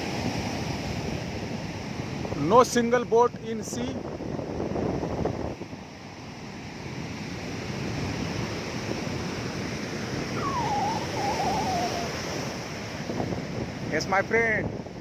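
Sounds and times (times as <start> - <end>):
surf breaking on beach: 7.3 - 14.1
faint wavering call: 10.3 - 12.5.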